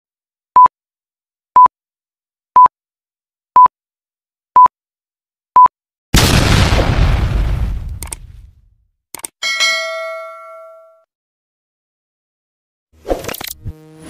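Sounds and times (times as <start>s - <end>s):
loud noisy boom: 6.2s - 8.0s.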